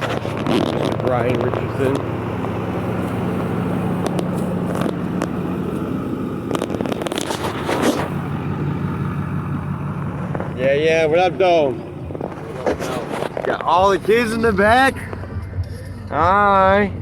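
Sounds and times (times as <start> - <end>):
clicks and scrapes: 0.0 - 8.2, 12.0 - 13.8
vehicle engine running: 0.0 - 17.0.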